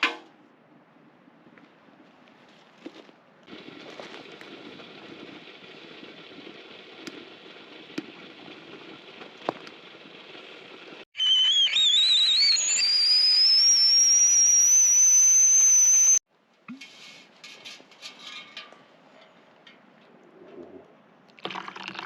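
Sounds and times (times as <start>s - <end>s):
kettle whistling: 11.0s - 16.2s.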